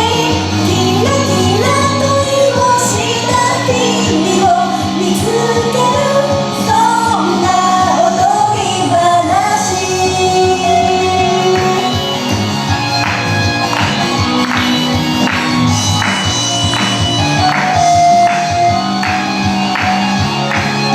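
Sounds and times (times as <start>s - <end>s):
woman singing pop song: 0.0s - 12.4s
pop music with steady beat: 0.0s - 20.9s.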